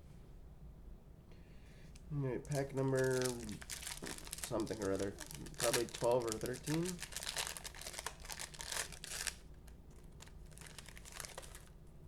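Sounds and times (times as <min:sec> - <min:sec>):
wrapper tearing and crinkling: 0:02.5 - 0:11.7.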